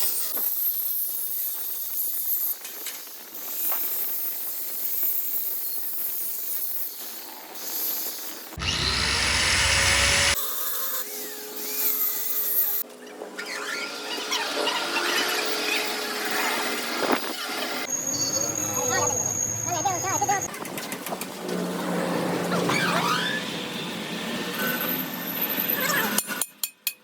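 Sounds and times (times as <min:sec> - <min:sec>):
power tool grinding metal: 0:08.6 - 0:10.4.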